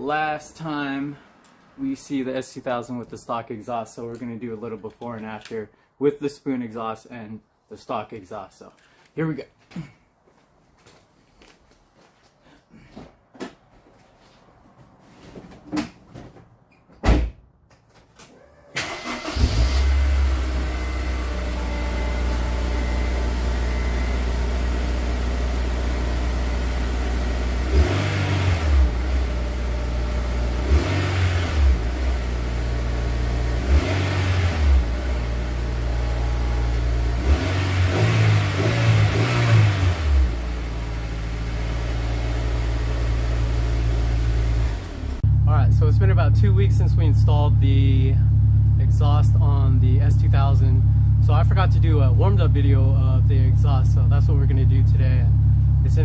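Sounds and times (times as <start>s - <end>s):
car engine starting and revving: 18.8s - 56.0s.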